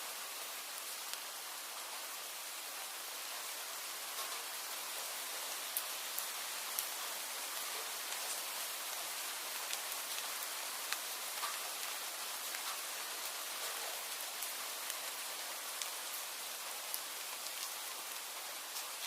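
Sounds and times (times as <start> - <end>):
steady rain hiss: 0.0 - 19.0
raindrops ticking: 4.1 - 19.0.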